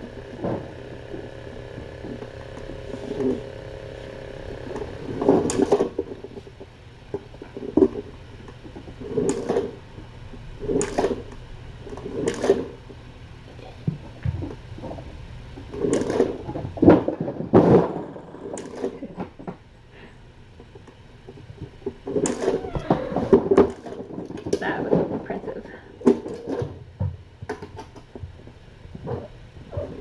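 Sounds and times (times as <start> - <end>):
steady low hum: 0.0 - 23.7.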